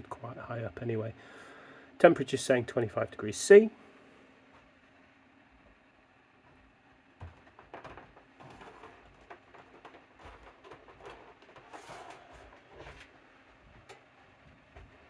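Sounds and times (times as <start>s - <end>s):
cooling fan humming: 0.0s - 15.0s
handling clicks and rustles: 7.2s - 15.0s.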